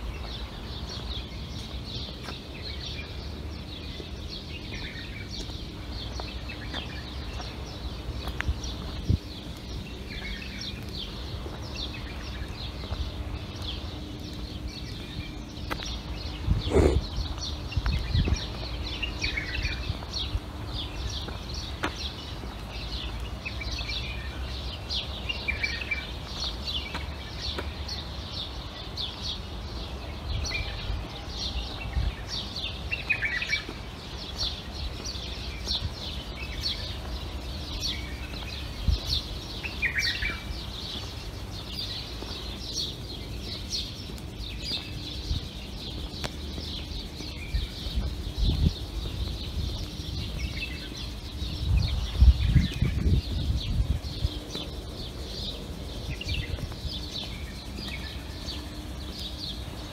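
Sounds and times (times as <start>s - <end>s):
small songbirds chirping: 0.0s - 59.9s
lower bird call: 16.5s - 17.6s.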